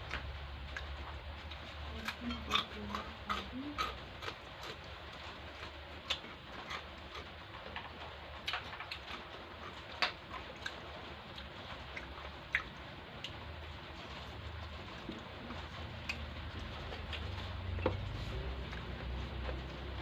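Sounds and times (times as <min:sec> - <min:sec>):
person chewing food: 0:00.0 - 0:20.0
steady low hum: 0:00.0 - 0:20.0.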